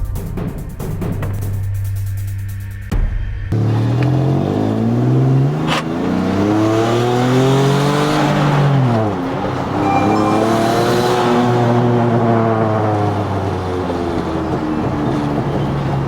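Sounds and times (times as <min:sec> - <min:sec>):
car engine accelerating hard: 0:03.6 - 0:09.7, 0:12.1 - 0:16.0.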